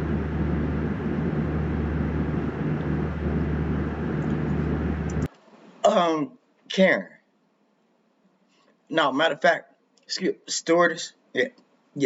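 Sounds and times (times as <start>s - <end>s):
aircraft cabin engine drone: 0.0s - 5.3s
constant low hum: 0.0s - 5.3s.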